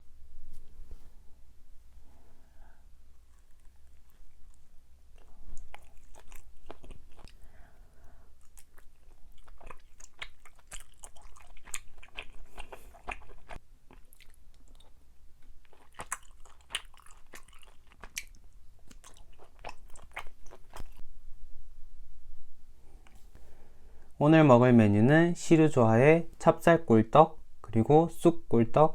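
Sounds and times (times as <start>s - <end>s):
biting and chewing: 3.2s - 7.5s, 8.4s - 21.0s.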